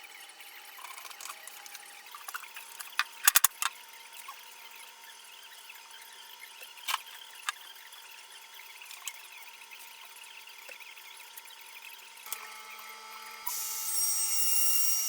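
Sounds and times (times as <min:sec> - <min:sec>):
sharp workshop clicks: 0:02.8 - 0:03.8.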